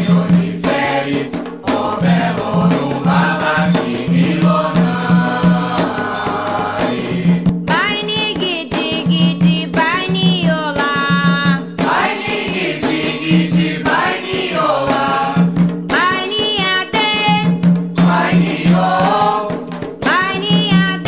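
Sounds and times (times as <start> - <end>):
hand drum strokes: 0.0 - 21.0
voices singing a chant: 0.0 - 21.0.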